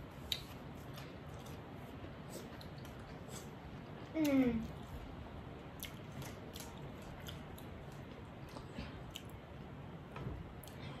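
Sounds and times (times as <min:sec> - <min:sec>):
people chewing: 0:00.2 - 0:09.7.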